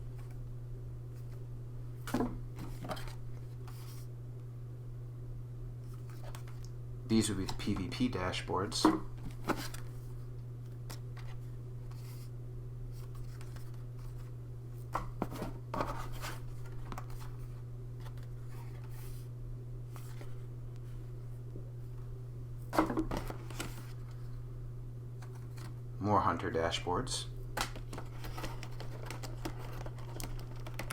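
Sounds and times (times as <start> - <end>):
steady low hum: 0.0 - 30.9
cardboard rustles and taps: 14.9 - 17.3, 27.6 - 30.9.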